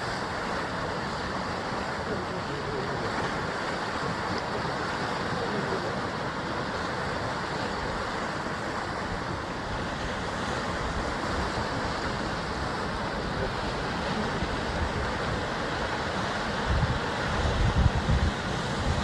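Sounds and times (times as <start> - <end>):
sea waves washing against rocks: 0.0 - 19.0
wind: 0.0 - 19.0.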